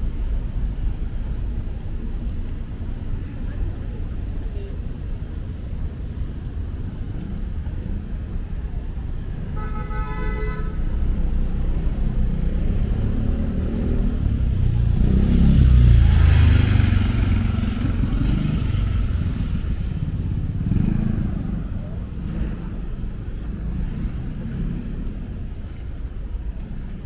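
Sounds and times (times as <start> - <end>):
traffic on wet street: 0.0 - 27.0
vehicle horn toot: 9.6 - 10.8
vehicle passing close: 12.3 - 22.8.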